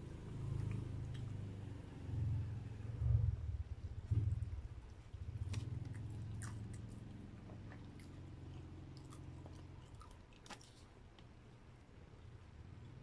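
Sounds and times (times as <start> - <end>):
low steady hum: 0.0 - 13.0
close chewing with wet clicks: 0.4 - 1.6, 4.8 - 13.0.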